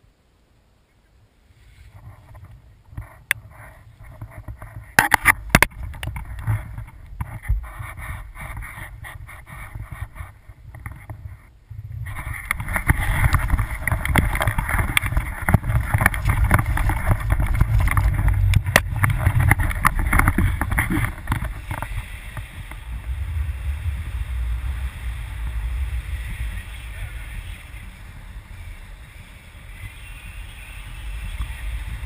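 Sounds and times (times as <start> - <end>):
dense crackling: 1.9 - 32.0
wind buffeting microphone: 1.9 - 32.0.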